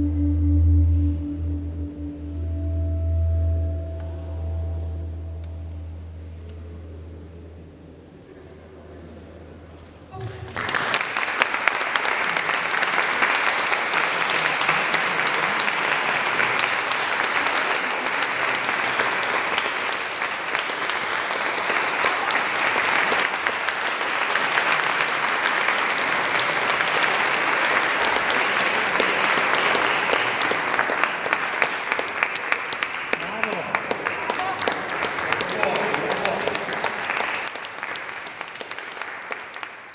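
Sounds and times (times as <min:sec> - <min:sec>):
audience applauding: 0:10.2 - 0:39.9.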